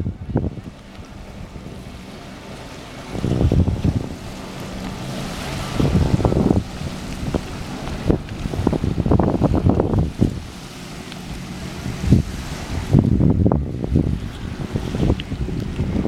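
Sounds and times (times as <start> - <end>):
waves: 0.0 - 16.0
wind buffeting microphone: 0.0 - 16.0.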